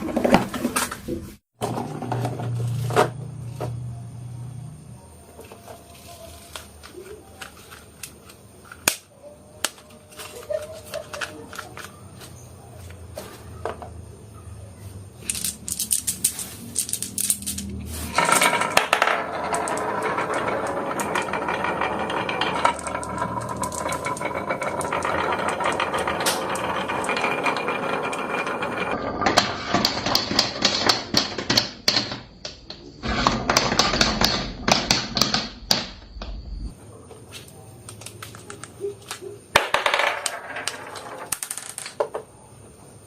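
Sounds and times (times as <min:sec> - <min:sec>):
marbles rolling down wooden run: 0:15.3 - 0:35.8, 0:39.5 - 0:42.3.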